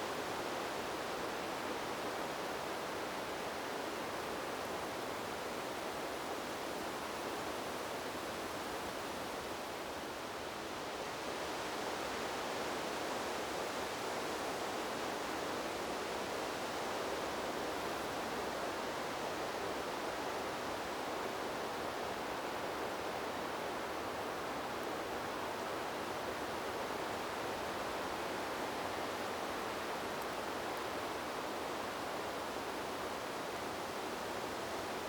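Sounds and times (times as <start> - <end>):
wind blowing through trees: 0.0 - 35.0.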